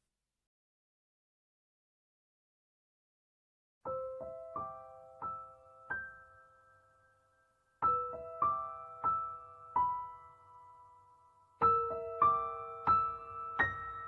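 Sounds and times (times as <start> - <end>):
slow gentle piano notes: 3.8 - 14.0.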